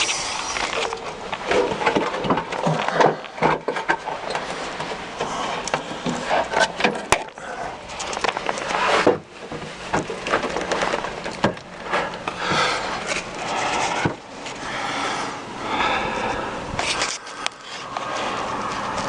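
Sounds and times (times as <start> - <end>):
sharp clicks and knocks: 0.0 - 14.6
scraping and rubbing: 0.0 - 19.0.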